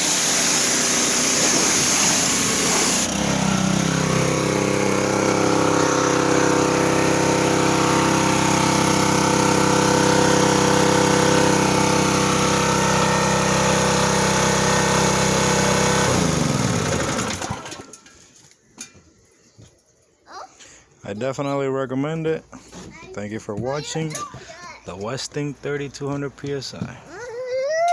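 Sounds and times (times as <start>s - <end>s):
engine winding down: 0.0s - 18.1s
pressure washer engine running: 0.0s - 18.1s.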